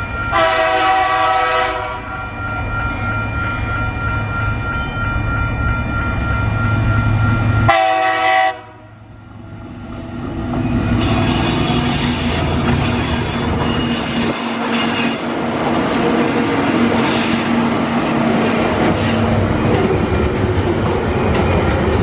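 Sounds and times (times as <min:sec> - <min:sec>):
train horn blast: 0:00.3 - 0:02.1, 0:07.7 - 0:09.0
freight wagons rumbling: 0:10.4 - 0:22.0
high-pitched wheel squeal: 0:11.0 - 0:15.4.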